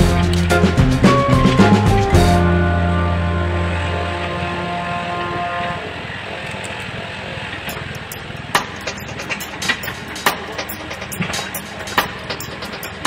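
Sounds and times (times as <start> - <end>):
excavator diesel engine running: 0.0 - 13.0
sharp clicks and knocks: 7.7 - 13.0.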